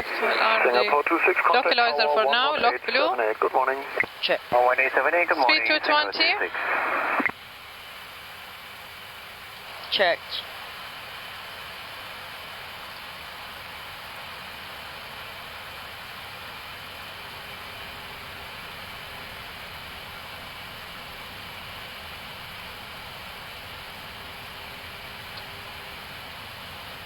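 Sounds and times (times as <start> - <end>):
faint high whine: 0.0 - 8.2.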